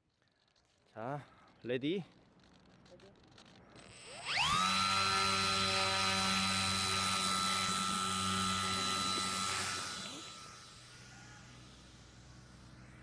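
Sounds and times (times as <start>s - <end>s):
electric motor propeller whine: 3.8s - 13.0s.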